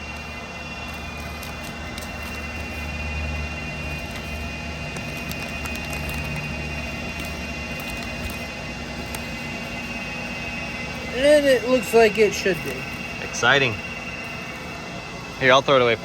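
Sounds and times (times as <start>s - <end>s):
low machine hum: 0.0s - 16.0s
granules poured from a bag: 3.8s - 9.3s.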